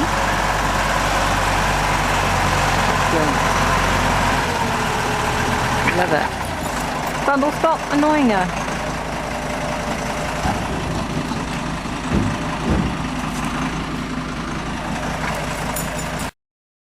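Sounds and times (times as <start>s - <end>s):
tractor diesel engine idling: 0.0s - 16.3s
low thumps: 8.8s - 16.0s.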